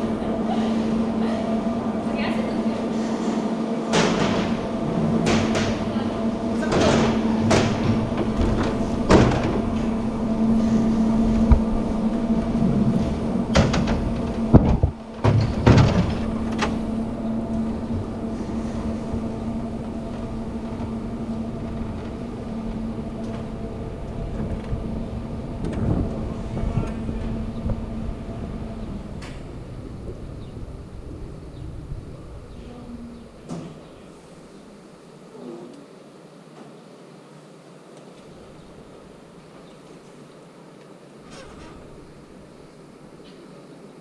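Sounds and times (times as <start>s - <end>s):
cableway machinery humming: 0.0s - 36.4s, 37.5s - 44.0s
loud clanks and knocks: 3.9s - 6.0s, 6.6s - 29.6s.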